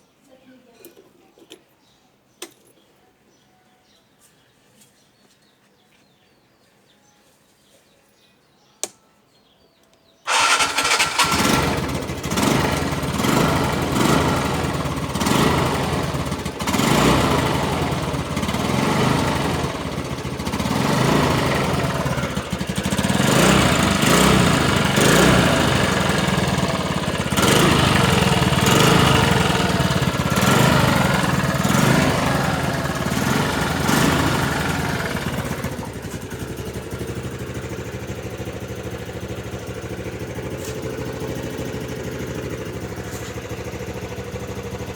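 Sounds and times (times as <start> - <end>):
click: 8.8 - 9.0, 9.8 - 10.1
scooter engine revving: 10.3 - 44.9.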